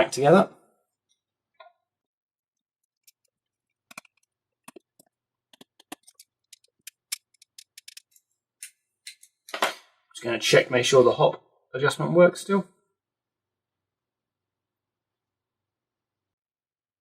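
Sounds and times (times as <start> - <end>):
screwdriver and screws clicking: 3.9 - 9.6.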